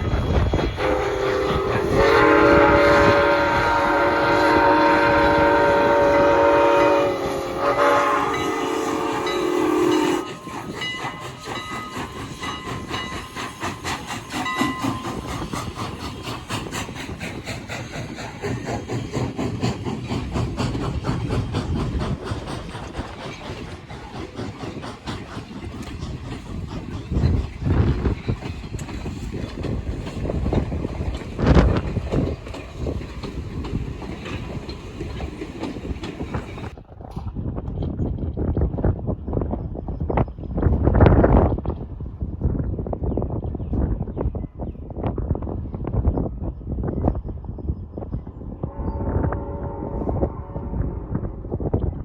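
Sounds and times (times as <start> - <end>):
train wheels clickety-clack: 0.0 - 52.0
train chime horn: 0.8 - 10.6, 48.7 - 51.4.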